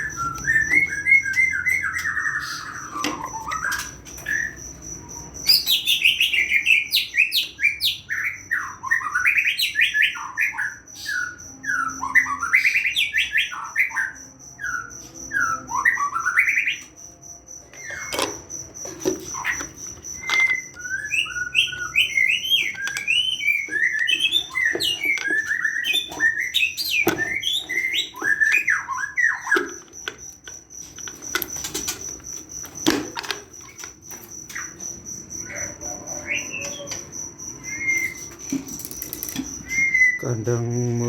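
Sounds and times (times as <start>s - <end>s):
bird whistled chirps: 0.0s - 4.6s, 19.3s - 29.8s, 35.5s - 38.6s, 39.5s - 40.7s.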